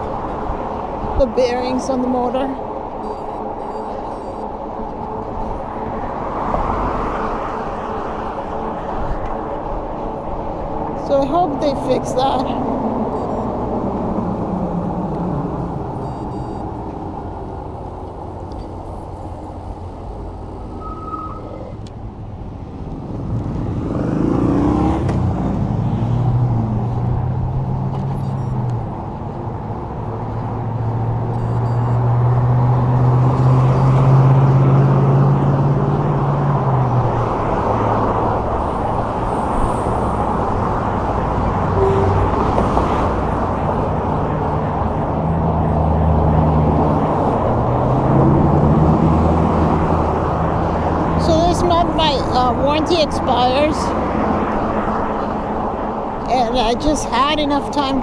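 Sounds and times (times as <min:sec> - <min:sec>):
passing motor traffic hum: 0:00.0 - 0:58.0.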